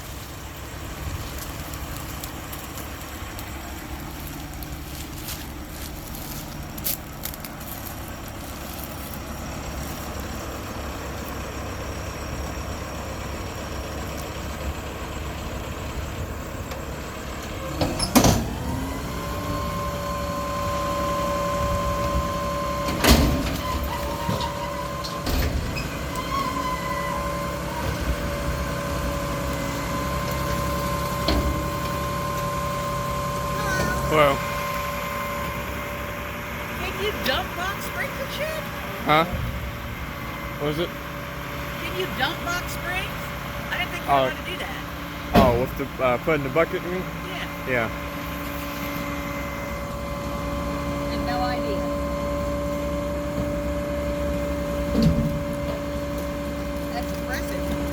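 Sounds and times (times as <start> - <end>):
truck engine running: 0.0 - 57.9
hydraulic whine: 9.2 - 57.9.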